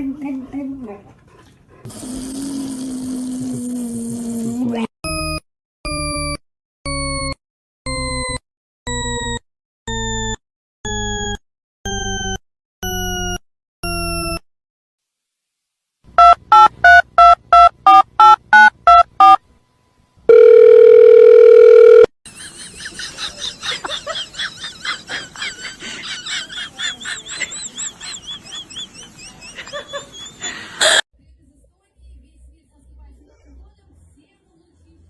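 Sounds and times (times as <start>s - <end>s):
telephone keypad tones: 16.2s - 19.4s, 20.3s - 22.1s.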